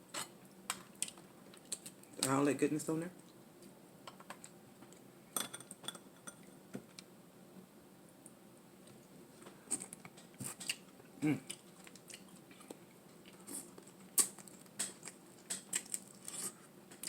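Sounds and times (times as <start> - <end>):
person humming mm: 11.2 - 11.5.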